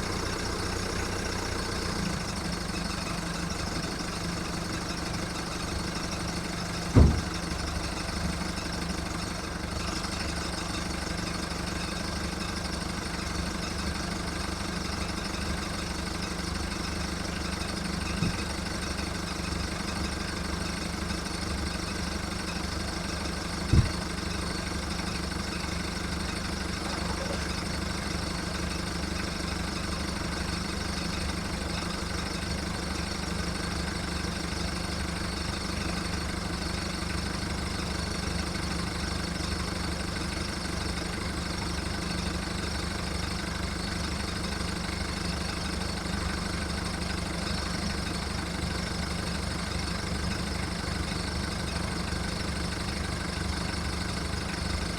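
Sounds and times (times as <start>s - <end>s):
diesel engine idling rough: 0.0s - 54.9s
short sharp knock: 6.9s - 7.4s.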